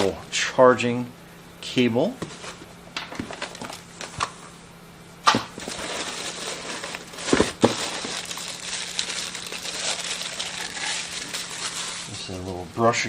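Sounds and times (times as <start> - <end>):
packaging crinkling: 5.4 - 12.6.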